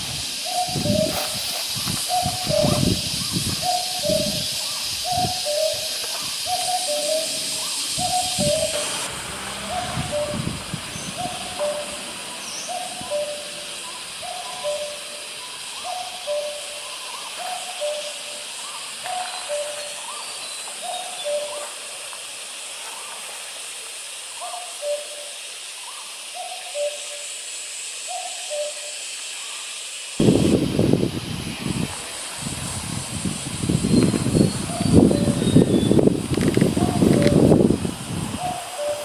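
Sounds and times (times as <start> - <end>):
cuckoo calling: 0.0 - 22.0, 24.4 - 27.2, 28.1 - 29.5, 33.2 - 39.0
steady high hiss: 0.0 - 39.0.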